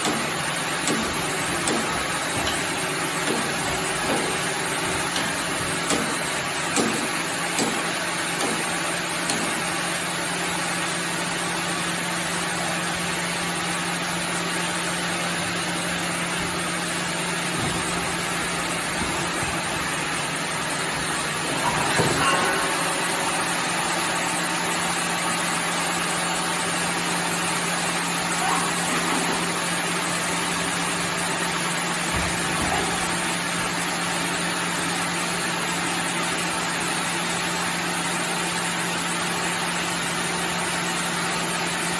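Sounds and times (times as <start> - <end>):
knocks of wood and metal: 0.0 - 9.8, 16.3 - 24.2
sawmill machinery running: 0.0 - 41.9.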